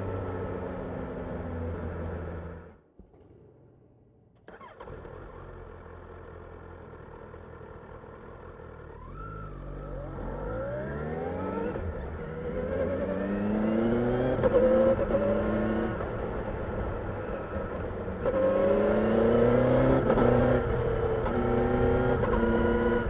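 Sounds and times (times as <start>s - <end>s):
motorcycle engine revving: 18.1s - 23.0s.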